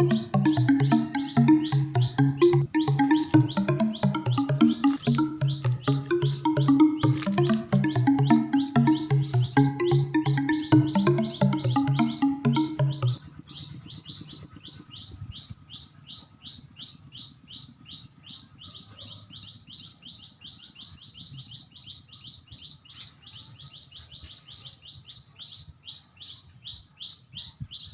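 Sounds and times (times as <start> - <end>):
background music: 0.0 - 13.2
bird chirping: 0.0 - 15.1.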